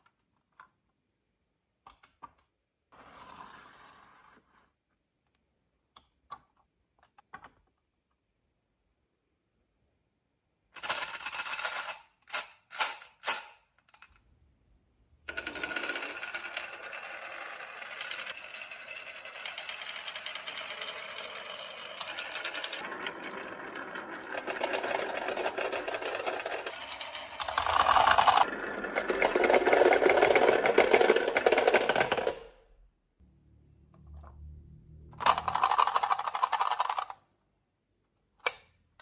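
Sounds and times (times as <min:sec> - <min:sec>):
marbles rolling on wooden track: 0:10.8 - 0:12.0, 0:15.3 - 0:32.5, 0:35.2 - 0:37.2
marbles clattering on wooden run: 0:15.3 - 0:32.4, 0:35.3 - 0:37.2.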